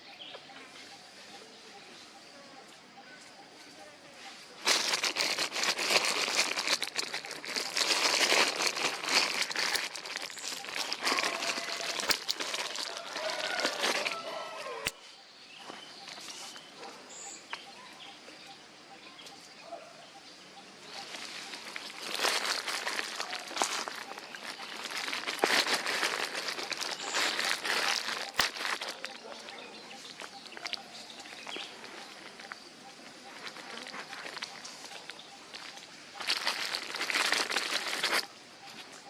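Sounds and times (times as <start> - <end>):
dense rustling and crackling: 4.6 - 14.9, 20.9 - 39.0.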